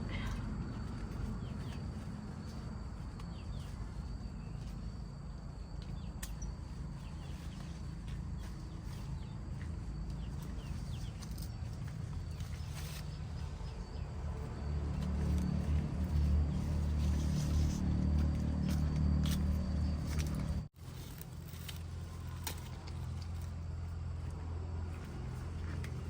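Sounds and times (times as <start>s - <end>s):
steady low rumble: 0.0s - 20.7s.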